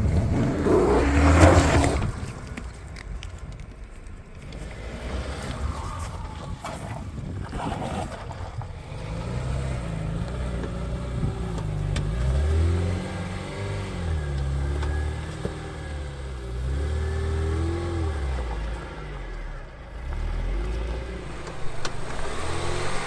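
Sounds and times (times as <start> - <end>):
car engine revving: 0.0 - 2.8, 8.0 - 23.0.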